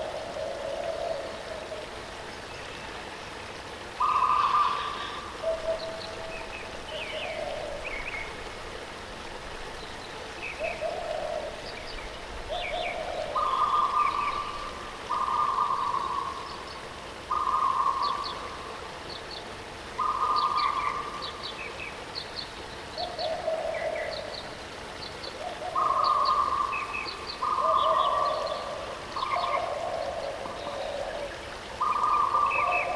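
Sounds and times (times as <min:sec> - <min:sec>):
birds calling: 0:09.8 - 0:32.9.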